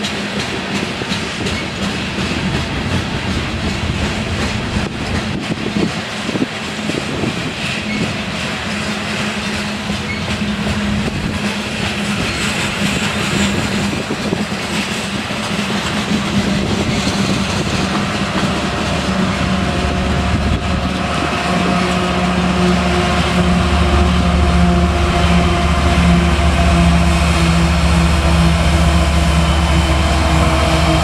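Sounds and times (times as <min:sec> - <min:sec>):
diesel locomotive engine drone: 0:00.0 - 0:31.0
train cars rolling on rails: 0:00.0 - 0:31.0.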